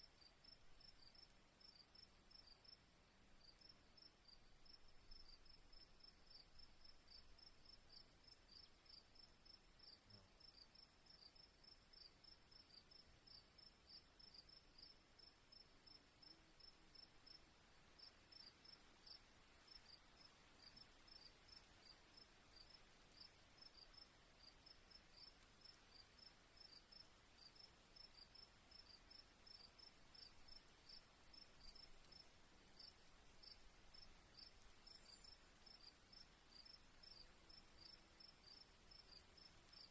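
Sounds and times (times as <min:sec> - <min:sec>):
cricket chirping in pulses: 0:25.1 - 0:39.9.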